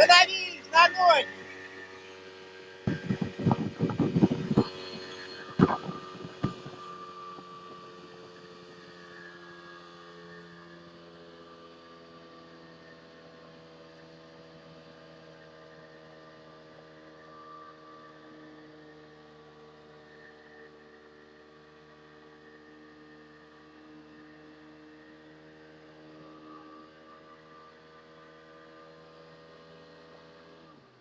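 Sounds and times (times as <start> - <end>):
motorboat engine humming: 0.0 - 9.6.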